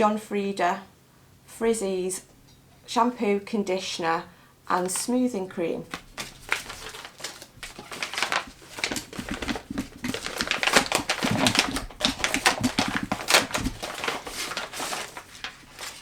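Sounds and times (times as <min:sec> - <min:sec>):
packaging crackling and rustling: 0:05.9 - 0:16.0.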